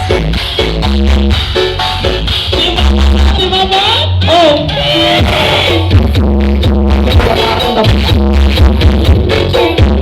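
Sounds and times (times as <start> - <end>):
loud electronic dance music: 0.0 - 10.0.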